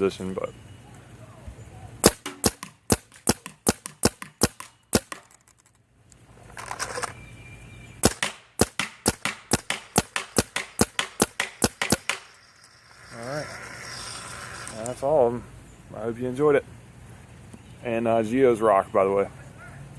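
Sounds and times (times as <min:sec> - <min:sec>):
paintball marker firing rapid shots: 0:02.0 - 0:05.4, 0:08.0 - 0:12.3.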